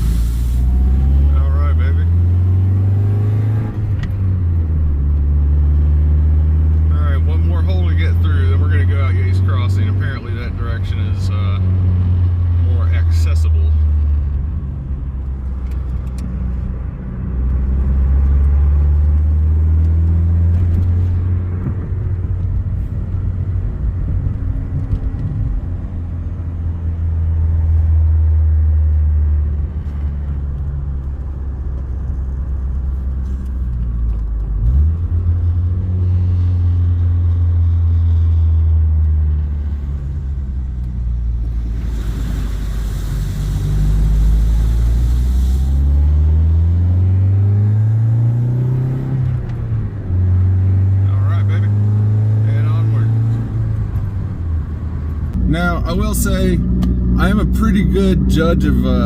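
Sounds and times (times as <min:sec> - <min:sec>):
rushing hiss: 0:00.0 - 0:00.8, 0:41.7 - 0:45.8
car engine running: 0:00.0 - 0:59.0.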